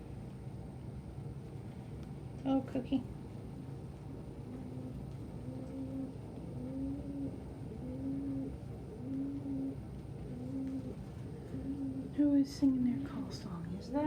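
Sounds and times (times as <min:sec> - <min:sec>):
pigeon cooing: 0:04.6 - 0:12.2.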